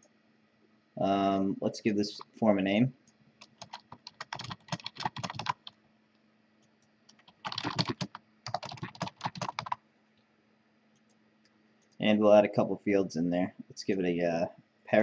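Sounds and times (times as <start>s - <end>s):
typing on computer keyboard: 3.4s - 5.7s, 7.1s - 9.8s.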